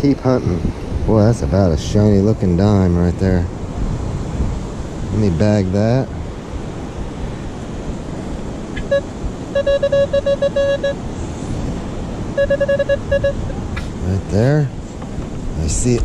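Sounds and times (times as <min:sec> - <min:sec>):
surf: 0:00.0 - 0:16.0
wind: 0:00.0 - 0:16.0
metal detector beeps: 0:08.8 - 0:11.0, 0:12.3 - 0:13.6.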